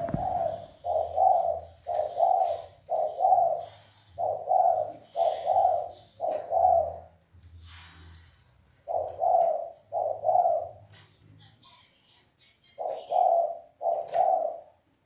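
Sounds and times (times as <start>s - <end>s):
dove cooing: 0.0s - 7.2s, 8.8s - 10.9s, 12.8s - 14.8s.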